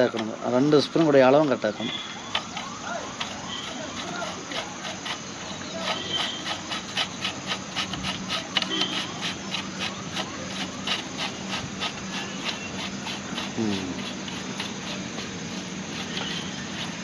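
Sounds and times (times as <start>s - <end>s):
light scraping on metal: 0.0s - 17.0s
steady low hum: 1.6s - 17.0s.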